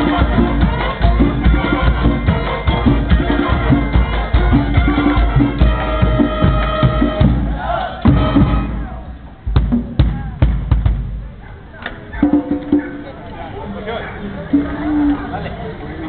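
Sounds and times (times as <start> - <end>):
long held band notes: 0.0 - 11.3
marching band drums: 0.0 - 11.4, 12.0 - 13.3.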